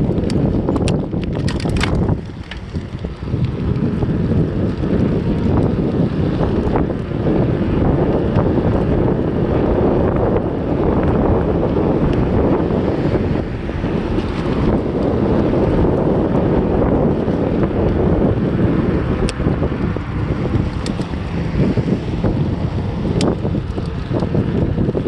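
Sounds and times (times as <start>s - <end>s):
sharp clicks and rattles: 0.0s - 7.1s, 19.2s - 25.0s
wind buffeting microphone: 0.0s - 25.0s.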